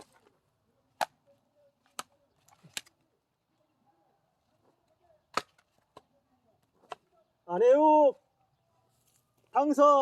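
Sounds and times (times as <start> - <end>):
axe striking firewood: 5.3 - 6.0.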